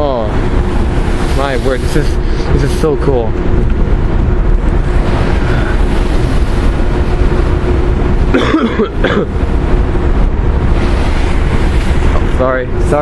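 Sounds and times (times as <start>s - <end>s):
ferry running noise: 0.0s - 13.0s
wind rumbling on microphone: 0.0s - 13.0s.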